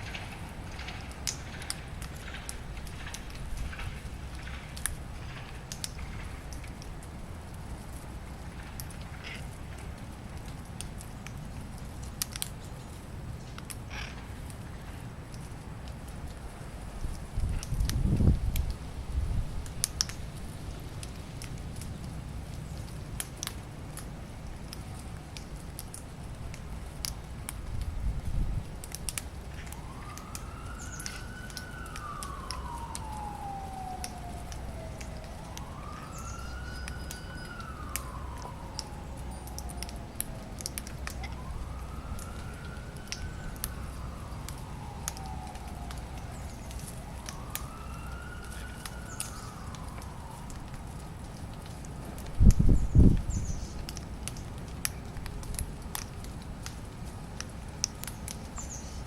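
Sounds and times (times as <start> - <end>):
siren wailing: 0.0 - 6.5, 29.0 - 59.0
steady low rumble: 0.0 - 12.0.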